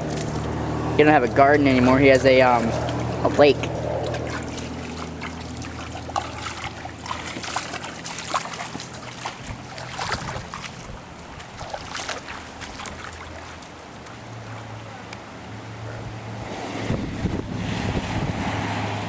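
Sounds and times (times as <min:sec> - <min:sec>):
low steady hum: 0:00.0 - 0:17.7
sharp drips and splashes: 0:00.0 - 0:19.0
water trickling and splashing: 0:00.0 - 0:19.0
storm wind: 0:15.8 - 0:19.0.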